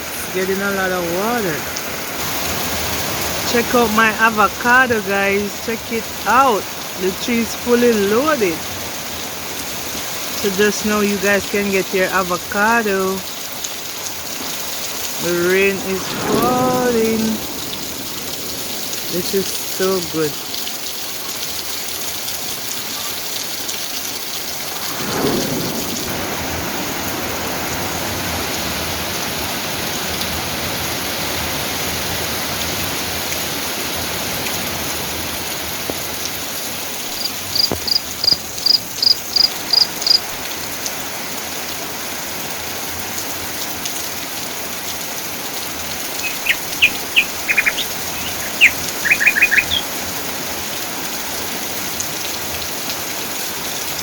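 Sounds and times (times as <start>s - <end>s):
steady rain: 0.0s - 54.0s
birds chirping: 37.0s - 40.4s, 45.8s - 50.1s
bird repeating high note: 46.1s - 49.9s.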